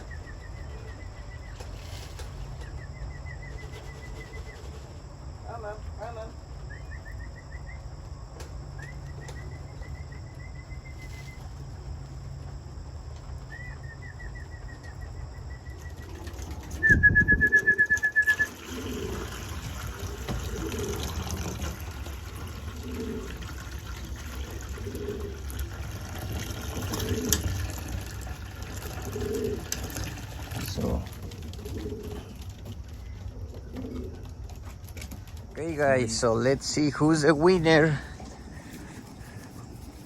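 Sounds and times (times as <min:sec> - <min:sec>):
pigeons cooing: 0:00.0 - 0:05.3, 0:13.4 - 0:40.0
pigeons wings flapping: 0:15.7 - 0:35.7.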